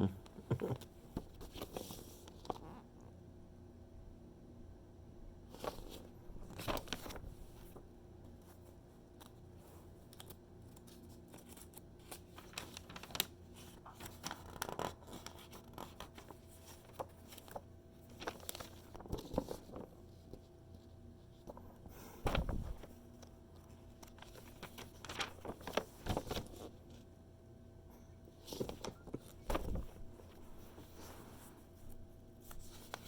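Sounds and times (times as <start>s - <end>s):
paper ticks and crinkles: 0.6s - 2.7s, 5.5s - 27.1s, 28.3s - 33.0s
magazine pages rustling: 5.5s - 27.1s, 28.3s - 33.0s.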